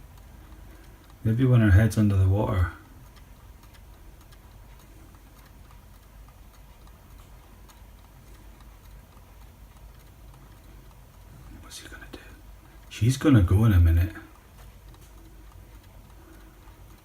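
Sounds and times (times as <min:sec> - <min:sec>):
faint ticks and clicks: 0:00.0 - 0:17.0
low rumble and hiss: 0:00.0 - 0:17.0.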